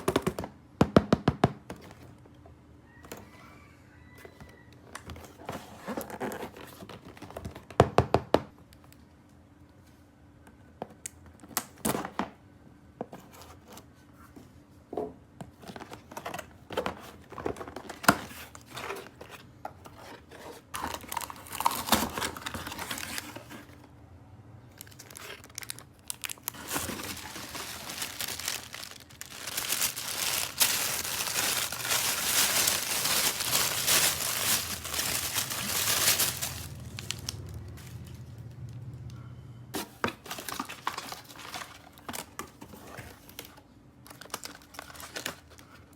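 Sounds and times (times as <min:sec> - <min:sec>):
plastic packaging crinkling and tearing: 0:15.7 - 0:23.8, 0:24.7 - 0:38.4, 0:40.1 - 0:45.9.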